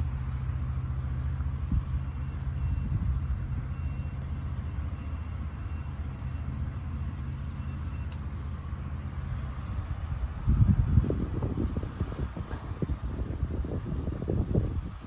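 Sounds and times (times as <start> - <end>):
wind rumbling on microphone: 1.6 - 3.7, 9.6 - 15.0.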